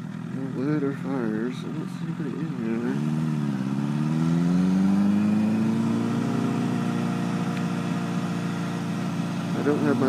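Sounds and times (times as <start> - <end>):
motorcycle engine pulling away: 0.0 - 10.0.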